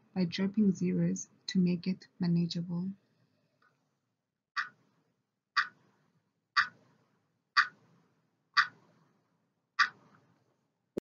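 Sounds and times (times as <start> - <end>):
clock ticking: 5.6 - 5.8, 6.6 - 6.8, 7.6 - 7.8, 8.6 - 8.8, 9.8 - 10.0.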